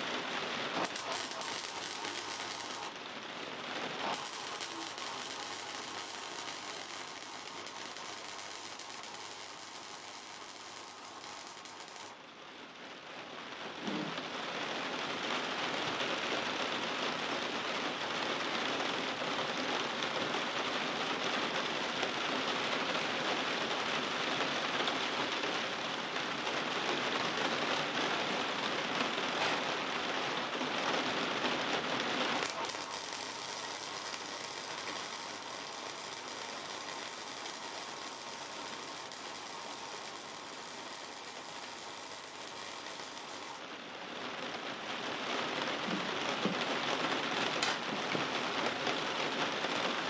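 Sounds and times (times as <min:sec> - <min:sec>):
arc welding crackle: 0:00.0 - 0:12.2, 0:24.4 - 0:44.8, 0:47.2 - 0:49.9.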